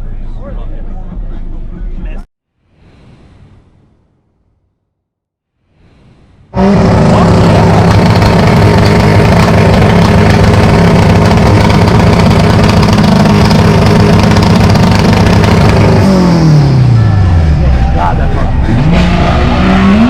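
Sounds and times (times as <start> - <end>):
loud engine at high revs: 6.6 - 20.0.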